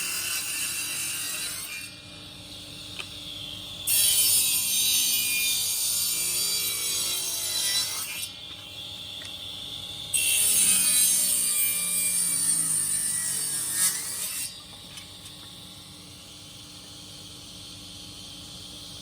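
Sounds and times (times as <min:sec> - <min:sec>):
saw cutting wood: 0:00.0 - 0:02.0, 0:03.9 - 0:08.3, 0:10.1 - 0:14.6
faint steady hum: 0:00.6 - 0:19.0.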